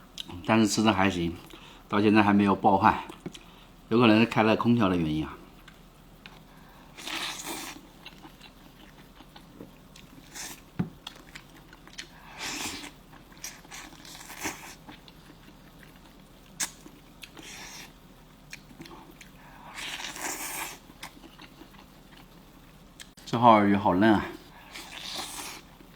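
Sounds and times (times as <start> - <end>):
person chewing food: 3.0 - 3.6, 5.5 - 23.2, 24.4 - 25.9.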